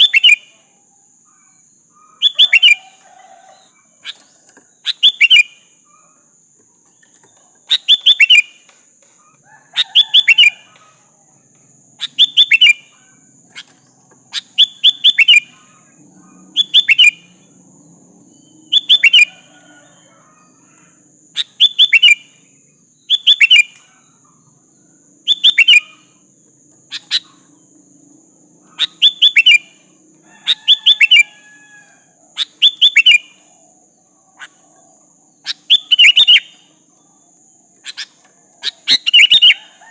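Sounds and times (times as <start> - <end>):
bulbul calling: 0.0 - 0.6, 1.2 - 6.3, 6.9 - 11.2, 12.0 - 17.5, 18.3 - 20.2, 21.3 - 24.5, 25.2 - 27.6, 28.6 - 31.5, 32.2 - 36.8, 37.7 - 39.8.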